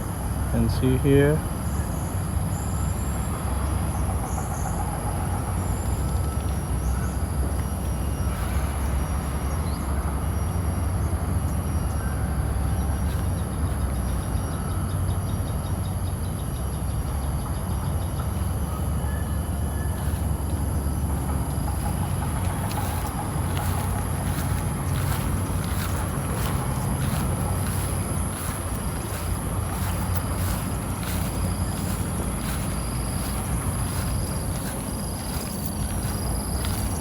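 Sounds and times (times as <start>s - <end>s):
heavy low rumble: 18.2s - 37.0s.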